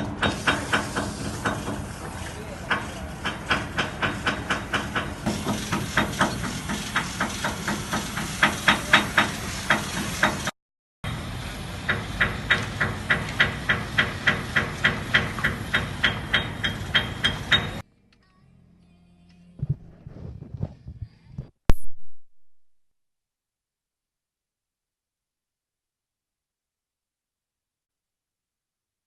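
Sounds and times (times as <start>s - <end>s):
hiss of work noise: 0.0s - 10.5s, 11.1s - 17.8s.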